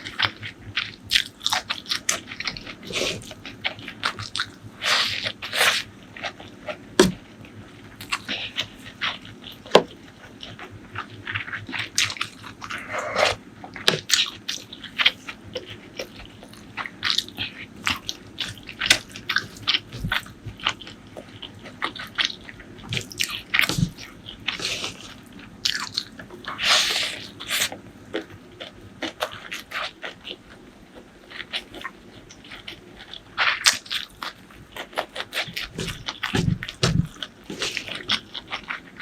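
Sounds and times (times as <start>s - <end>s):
chewing with wet mouth clicks: 13.7s - 39.0s.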